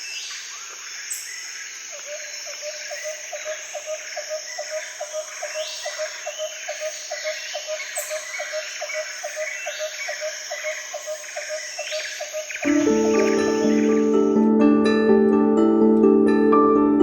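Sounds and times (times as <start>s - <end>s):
high insect drone: 0.0s - 14.4s
bird chirps: 2.0s - 14.4s.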